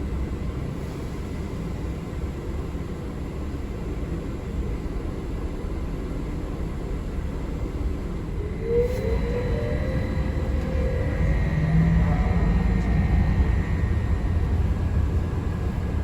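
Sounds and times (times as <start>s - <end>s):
bus rumble and road noise: 7.6s - 16.0s
rising motor whine: 8.1s - 16.0s.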